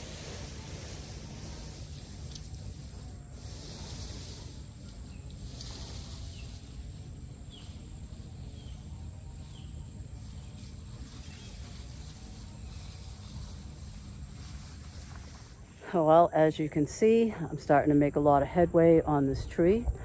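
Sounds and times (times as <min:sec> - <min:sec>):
high insect drone: 0:00.0 - 0:20.0
low rumble: 0:18.3 - 0:20.0.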